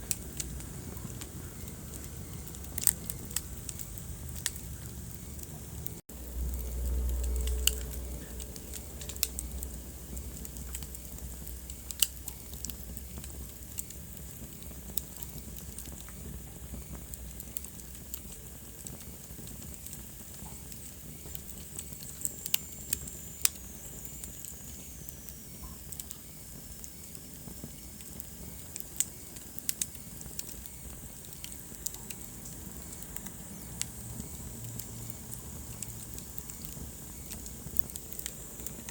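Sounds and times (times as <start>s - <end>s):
low rumble of flames: 0.0s - 38.9s
wood fire crackling: 0.0s - 38.9s.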